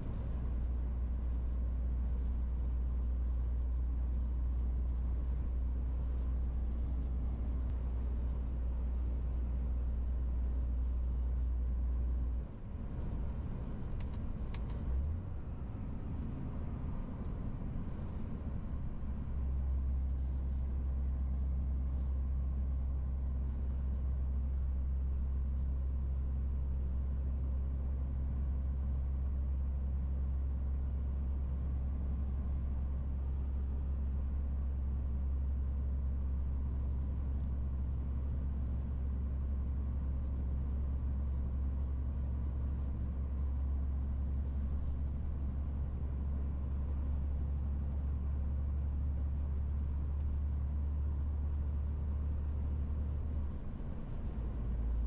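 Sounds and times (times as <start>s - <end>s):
diesel truck engine droning: 0.0s - 25.4s, 26.4s - 55.0s.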